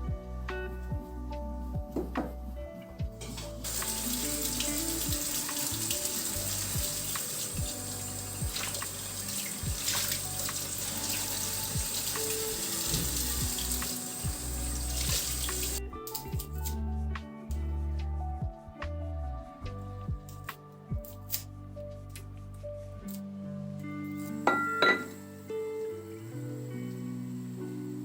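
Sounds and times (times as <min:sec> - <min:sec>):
tap water running into sink: 0:03.2 - 0:15.8.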